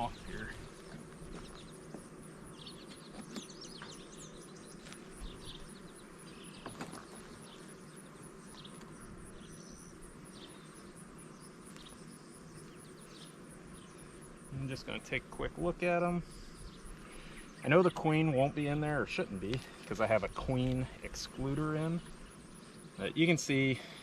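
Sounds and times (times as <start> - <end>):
honeybees humming: 0.0 - 24.0
bird chirps: 2.5 - 14.0.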